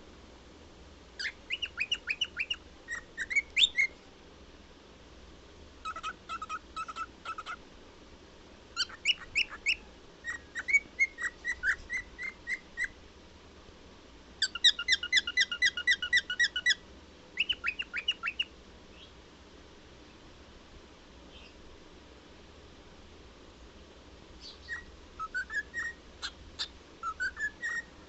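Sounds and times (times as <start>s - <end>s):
cockatiel whistling: 1.2s - 3.9s, 5.9s - 7.6s, 8.8s - 12.9s, 14.4s - 16.8s, 17.4s - 18.5s, 24.4s - 27.9s.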